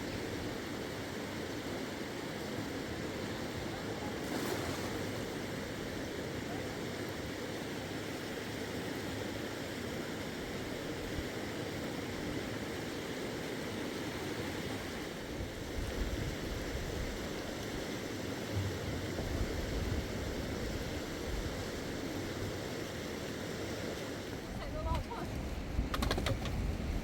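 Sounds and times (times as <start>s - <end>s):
steady rain: 6.3s - 25.8s.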